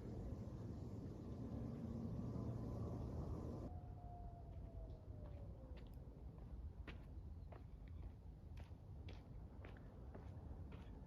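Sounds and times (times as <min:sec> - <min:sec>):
footsteps on a trail: 0:06.8 - 0:11.0.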